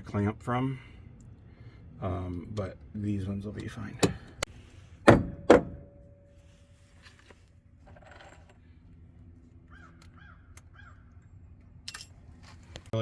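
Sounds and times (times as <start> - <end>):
sharp knock with metallic ring: 5.1 - 6.0.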